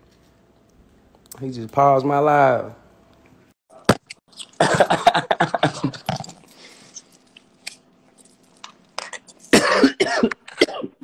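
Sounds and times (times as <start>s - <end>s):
man coughing: 4.6s - 6.0s, 9.1s - 11.0s.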